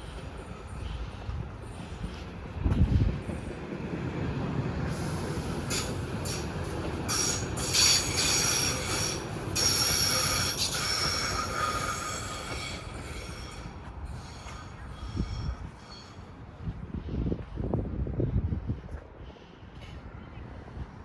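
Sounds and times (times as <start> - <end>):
train running rumble: 0.0 - 21.0
rail wheels squealing: 4.9 - 16.4.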